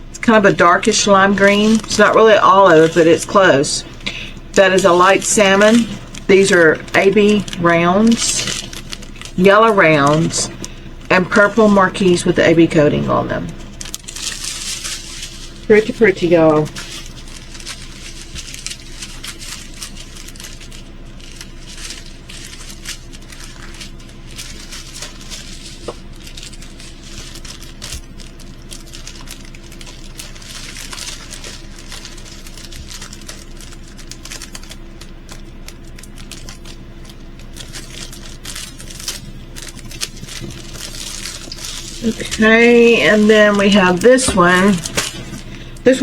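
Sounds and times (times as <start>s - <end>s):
plastic packaging crinkling: 0.0s - 46.0s
steady low hum: 0.0s - 46.0s.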